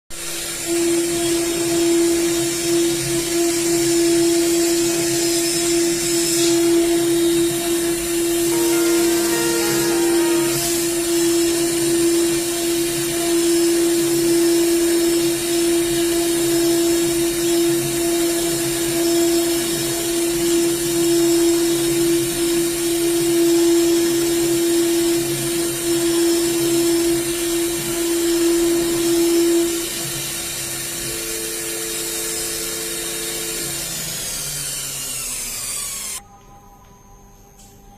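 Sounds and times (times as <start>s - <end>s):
router spindle high-pitched whine: 0.2s - 37.8s.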